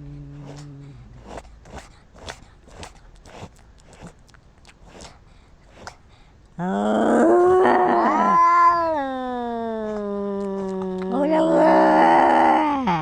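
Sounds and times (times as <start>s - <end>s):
cat yowling: 7.2s - 12.6s.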